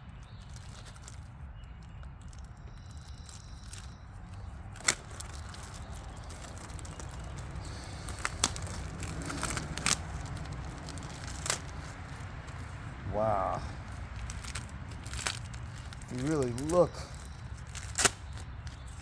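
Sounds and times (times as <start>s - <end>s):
packaging rustling: 0.2s - 19.0s
low rumble: 3.2s - 16.2s.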